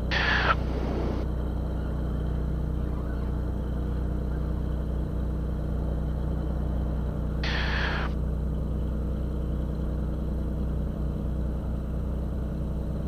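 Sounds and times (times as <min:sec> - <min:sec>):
radio static hiss: 0:00.0 - 0:01.2, 0:07.4 - 0:08.2
aircraft piston engine idling: 0:00.0 - 0:13.0.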